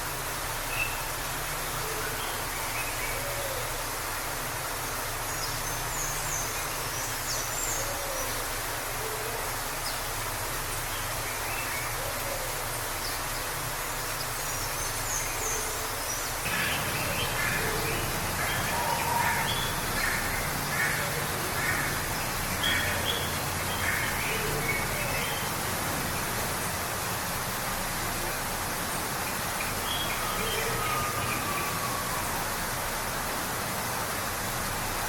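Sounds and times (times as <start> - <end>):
waterfall rushing: 0.0 - 35.0
birds chirping: 16.1 - 26.8.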